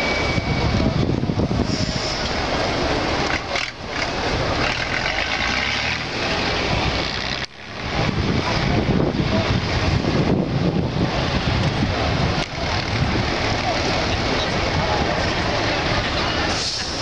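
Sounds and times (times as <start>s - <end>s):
truck engine rumbling under load: 0.0s - 17.0s.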